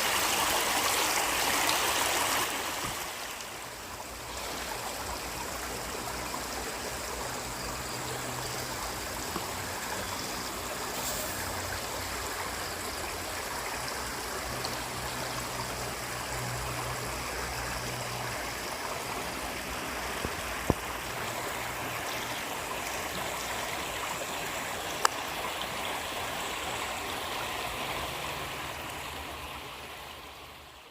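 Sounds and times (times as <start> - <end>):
waterfall splashing: 0.0 - 5.0.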